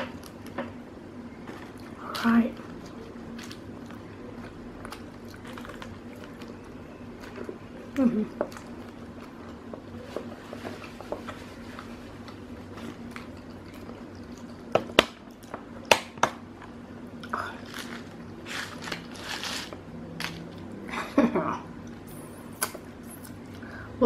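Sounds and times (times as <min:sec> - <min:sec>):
biting and chewing burger: 0:02.6 - 0:15.9, 0:16.6 - 0:20.7.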